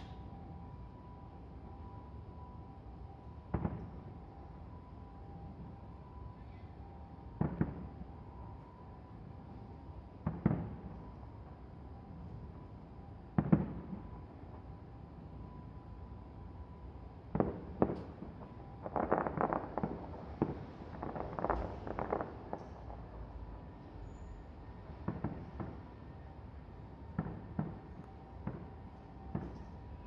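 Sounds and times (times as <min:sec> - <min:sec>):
distant fireworks pops and booms: 0:03.5 - 0:04.1, 0:07.4 - 0:07.9, 0:10.2 - 0:11.1, 0:13.3 - 0:14.6, 0:17.3 - 0:23.4, 0:24.9 - 0:25.9, 0:27.0 - 0:30.0
fireworks crackling: 0:17.5 - 0:23.3.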